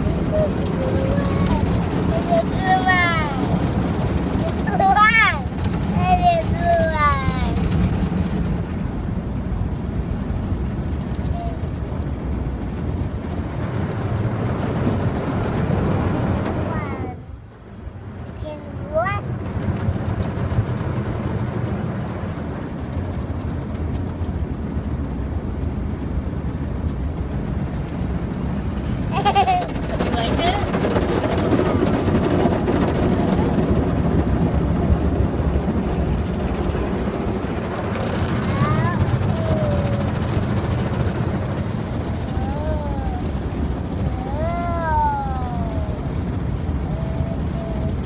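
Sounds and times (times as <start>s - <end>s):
car wash machinery rumbling: 0.0s - 48.0s
young child vocalizing: 42.3s - 43.4s, 44.1s - 46.0s, 46.8s - 48.0s.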